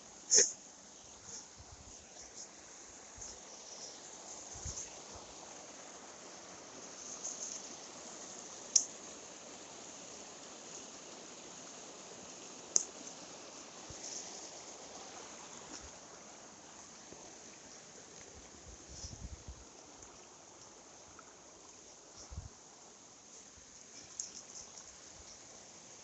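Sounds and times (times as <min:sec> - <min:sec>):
stream water running: 0:00.0 - 0:26.0.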